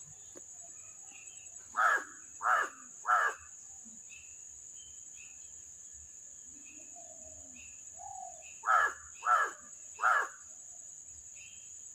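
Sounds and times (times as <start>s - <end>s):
faint bird chirps: 0.0s - 11.9s
high insect drone: 0.0s - 11.9s
crow cawing: 1.8s - 3.5s, 8.6s - 10.4s.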